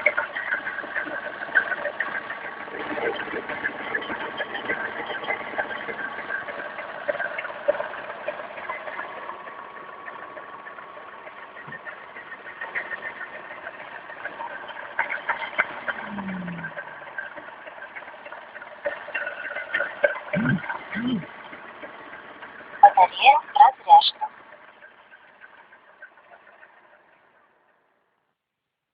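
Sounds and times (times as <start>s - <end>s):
low tone dropping in pitch: 15.9s - 16.9s, 20.4s - 21.3s.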